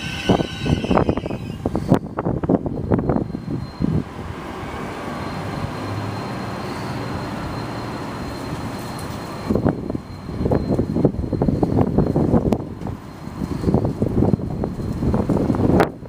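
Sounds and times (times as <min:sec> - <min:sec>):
faint high whine: 0:00.0 - 0:04.0
wind buffeting microphone: 0:00.0 - 0:05.0, 0:09.4 - 0:16.0
vehicle rumble: 0:01.0 - 0:16.0.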